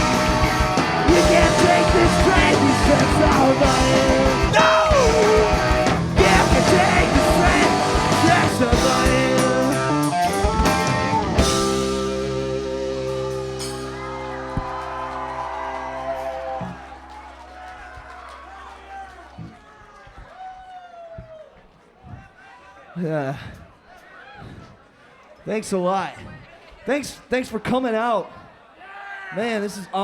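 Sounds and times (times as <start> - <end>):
person singing: 0.0 - 10.4
electric guitar: 0.0 - 19.5
drums: 0.0 - 20.5.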